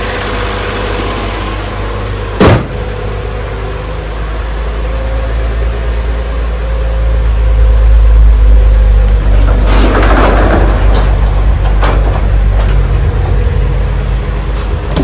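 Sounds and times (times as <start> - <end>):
car engine idling: 0.0 - 9.5
car hood slamming shut: 2.4 - 2.8.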